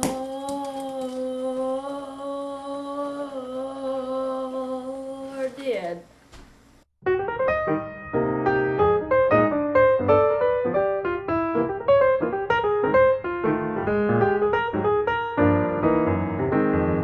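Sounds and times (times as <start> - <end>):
person singing long note: 0.0 - 5.4
electric piano music: 7.0 - 17.0.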